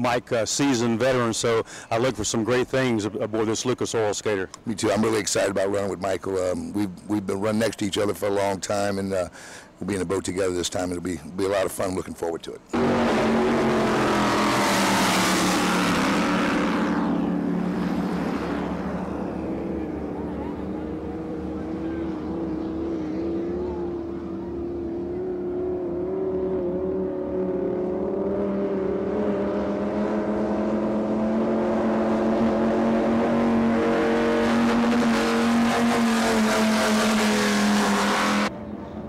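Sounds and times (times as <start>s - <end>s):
powerboat engines running: 15.5s - 29.0s.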